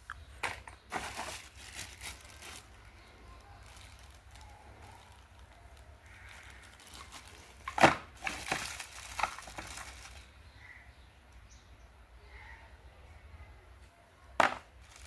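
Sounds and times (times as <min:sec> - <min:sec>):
packaging rustling and crackling: 0:00.9 - 0:10.3, 0:14.5 - 0:15.0.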